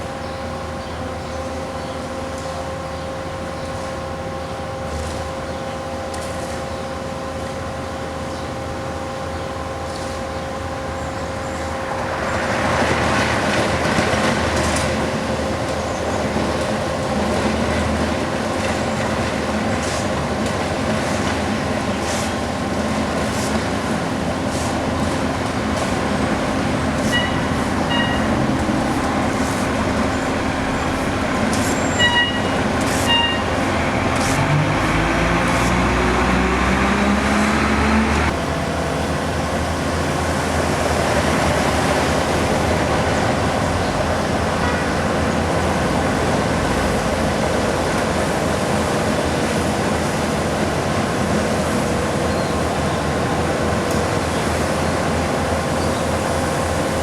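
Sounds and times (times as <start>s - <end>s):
diesel engines running: 0.0s - 57.0s
short high beeps: 27.1s - 28.3s, 32.0s - 32.5s
engine revving: 33.6s - 38.4s.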